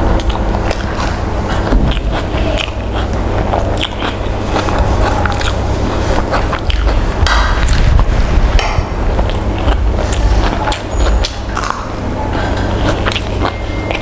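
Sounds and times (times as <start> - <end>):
chewing and biting food: 0.0 - 14.0
steady low rumble: 0.0 - 14.0.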